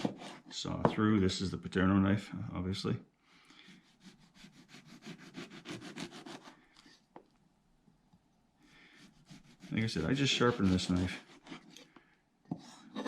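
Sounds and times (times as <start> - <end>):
knife sawing through lemon: 3.7 - 6.5, 9.0 - 11.8.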